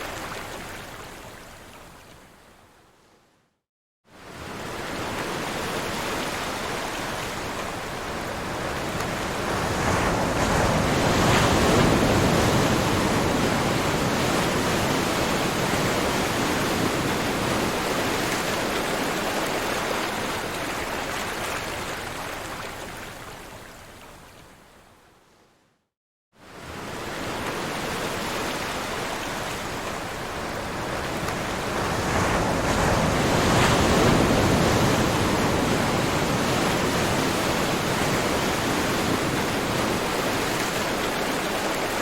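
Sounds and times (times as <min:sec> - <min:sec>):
ocean waves breaking: 0:26.6 - 0:42.0.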